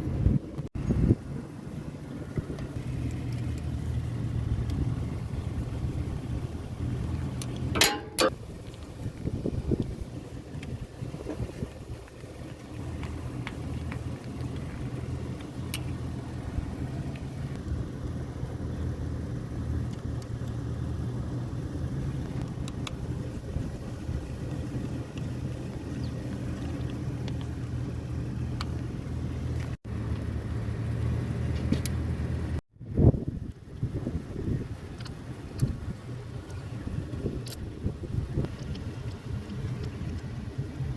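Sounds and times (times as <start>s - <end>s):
engine idling: 1.3s - 32.6s.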